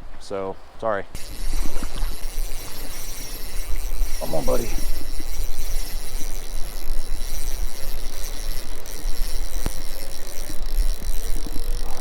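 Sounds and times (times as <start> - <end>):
sharp click: 9.5 - 11.7.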